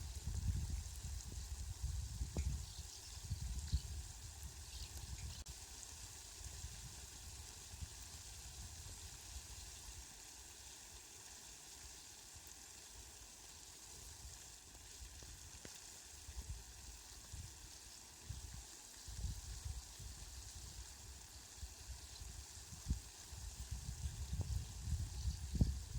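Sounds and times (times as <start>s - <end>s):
steady rain hiss: 0.0s - 25.9s.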